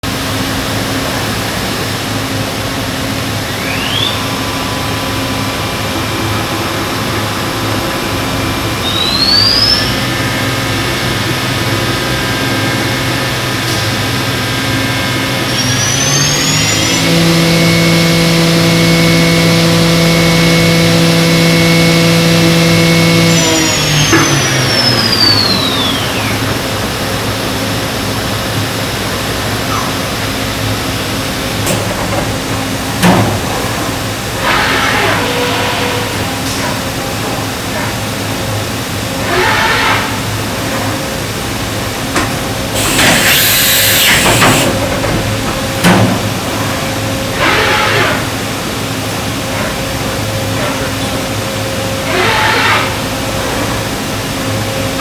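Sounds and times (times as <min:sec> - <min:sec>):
machine running hum: 0:00.0 - 0:52.1
machine spindle whining: 0:02.9 - 0:31.8, 0:42.3 - 0:47.5.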